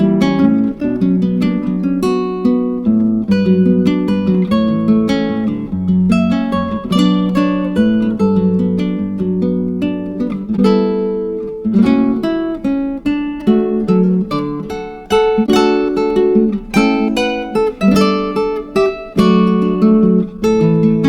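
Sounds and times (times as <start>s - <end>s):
acoustic guitar picking: 0.0s - 21.0s.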